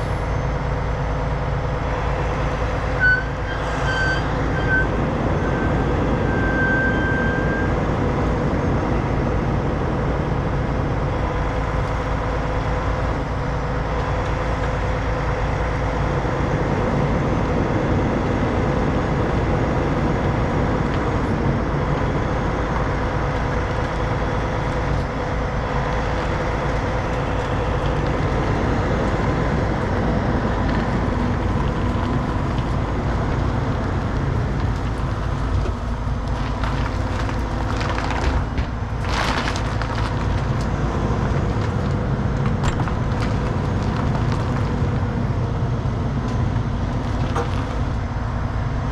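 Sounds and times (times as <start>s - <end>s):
diesel truck engine running: 0.0s - 48.9s.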